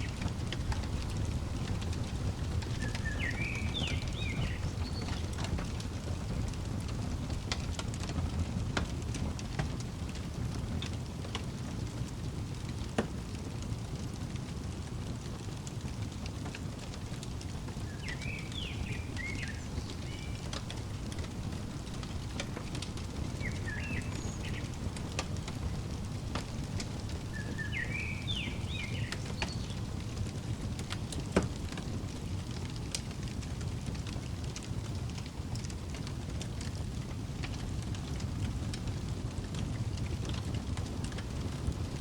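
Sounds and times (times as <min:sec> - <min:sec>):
bird chirping: 0:00.0 - 0:06.1, 0:17.4 - 0:30.3
wood fire crackling: 0:00.0 - 0:42.0.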